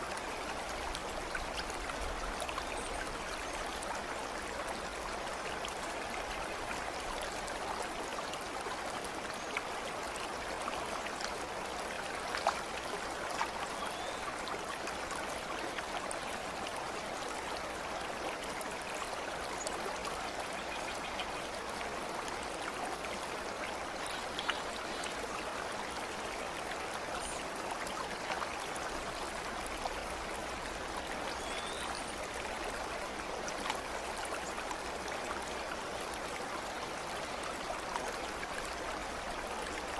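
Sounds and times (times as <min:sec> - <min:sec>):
water splashes and drips: 0:00.0 - 0:20.2
stream babbling: 0:00.0 - 0:39.9.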